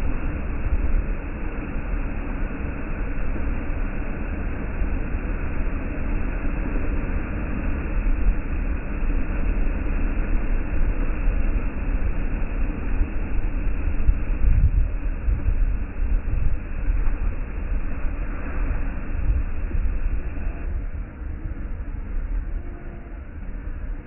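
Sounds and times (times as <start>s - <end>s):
wind buffeting microphone: 9.6s - 24.0s.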